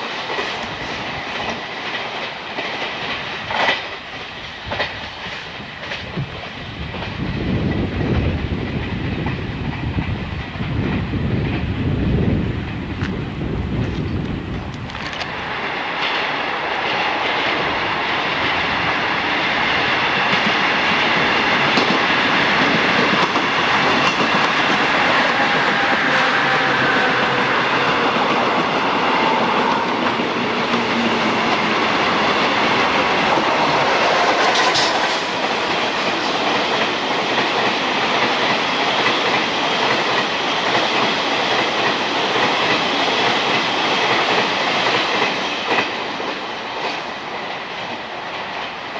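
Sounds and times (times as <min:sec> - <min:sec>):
train wheels clacking over rails: 0:00.0 - 0:48.9.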